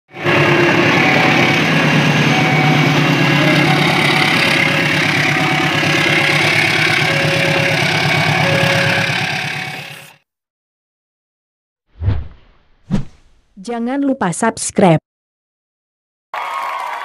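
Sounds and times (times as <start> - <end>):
coaches rolling along track: 0.1 - 10.2
diesel locomotive engine: 0.1 - 10.2.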